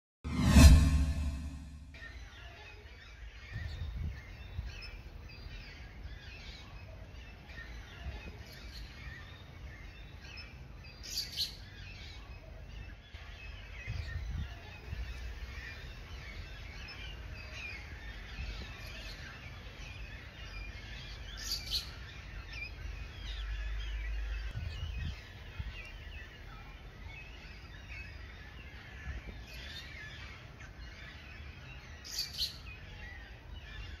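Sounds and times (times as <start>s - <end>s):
low rumble: 0.3s - 2.0s
small birds chirping: 2.0s - 34.0s.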